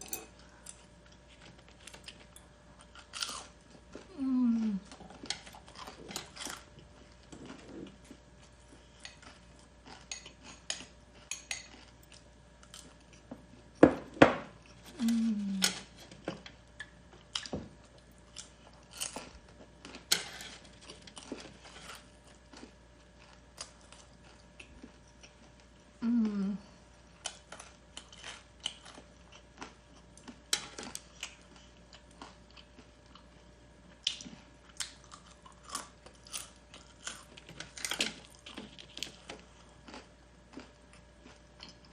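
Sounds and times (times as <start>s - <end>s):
utensils clinking on a plate: 0.0s - 0.8s
crunchy food being chewed: 0.3s - 13.8s, 14.5s - 41.9s.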